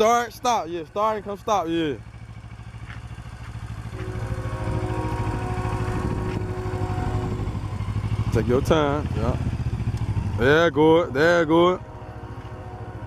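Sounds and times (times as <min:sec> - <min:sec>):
motorcycle engine running: 0:00.0 - 0:13.0
steady higher hum: 0:03.7 - 0:09.8.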